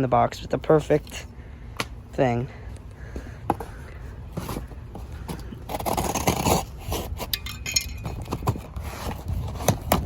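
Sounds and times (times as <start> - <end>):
cardboard box being opened: 4.4 - 7.3.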